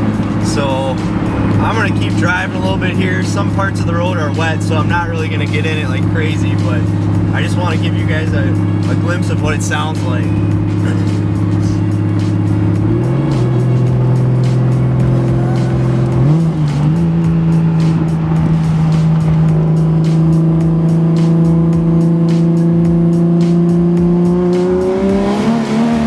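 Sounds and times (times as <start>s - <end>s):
car engine droning: 0.0s - 26.0s.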